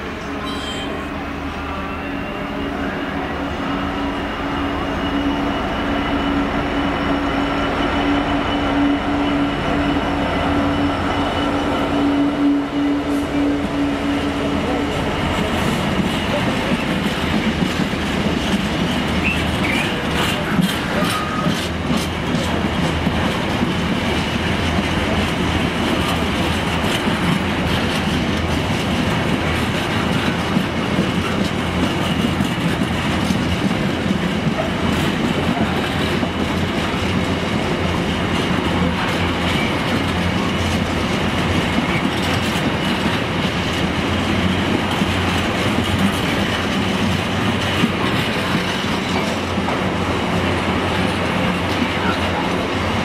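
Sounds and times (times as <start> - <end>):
steel wheels rumbling on rail: 0.0 - 53.0.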